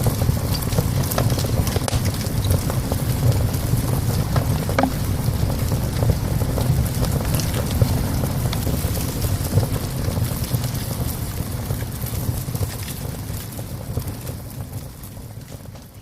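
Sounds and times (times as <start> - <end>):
low rumbling burn: 0.0 - 16.0
wood fire crackling in stove: 0.0 - 16.0
sharp pops and snaps: 4.7 - 5.3.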